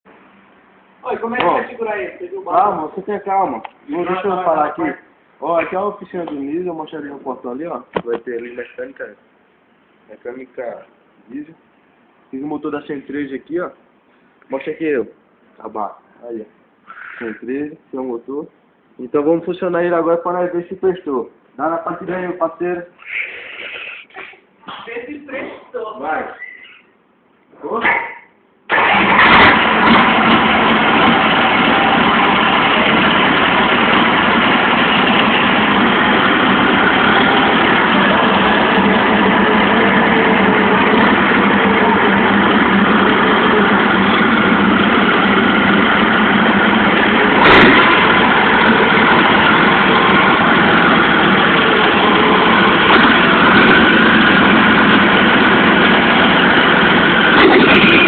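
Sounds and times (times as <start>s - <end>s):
diesel engine idling: 28.7s - 58.0s
sharp knock: 47.4s - 48.1s.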